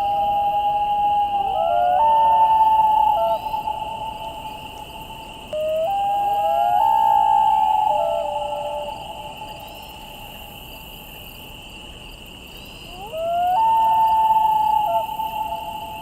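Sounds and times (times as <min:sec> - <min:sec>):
steady high insect drone: 0:00.0 - 0:16.0.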